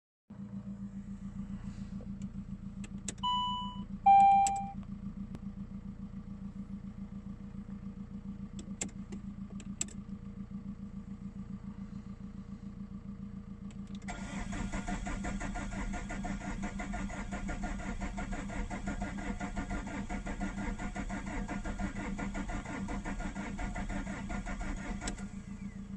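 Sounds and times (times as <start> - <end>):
diesel engine cranking and idling: 0.3 - 25.9
low hum: 0.4 - 14.0
warning beeps: 3.2 - 4.8.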